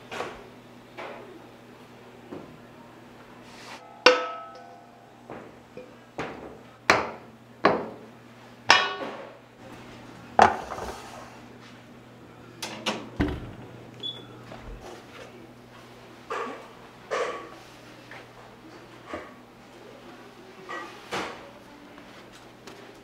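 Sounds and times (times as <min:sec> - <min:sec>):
metal kitchenware clanking: 0:03.8 - 0:04.9, 0:08.7 - 0:09.3.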